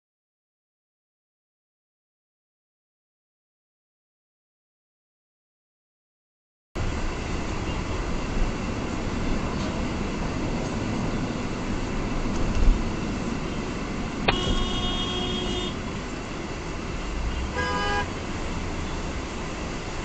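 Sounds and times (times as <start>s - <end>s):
car road and engine noise: 6.8s - 20.0s
car horn honking: 14.2s - 15.8s, 17.3s - 18.1s.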